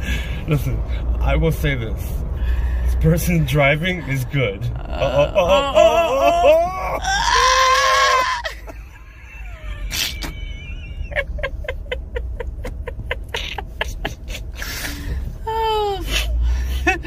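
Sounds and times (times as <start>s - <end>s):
man laughing hard: 4.9s - 15.0s.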